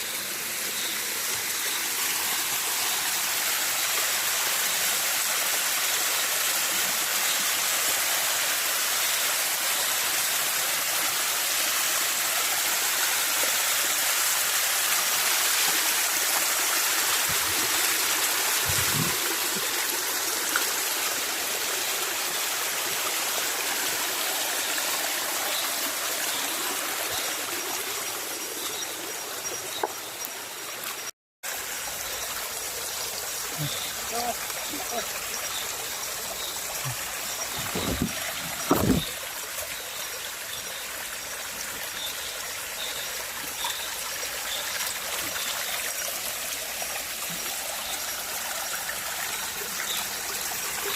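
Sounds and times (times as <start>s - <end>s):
forest stream rushing: 0.0s - 50.9s.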